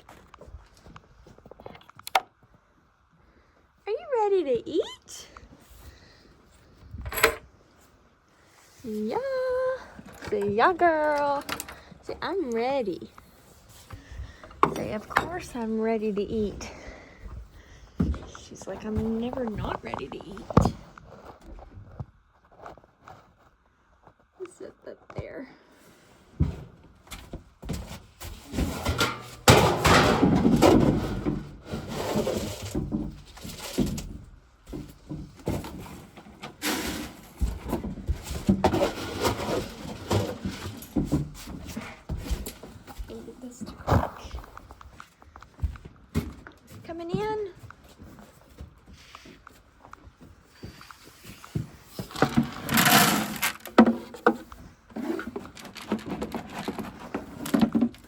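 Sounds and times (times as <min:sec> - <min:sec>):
handling rustling and scraping: 0:05.3 - 0:58.0.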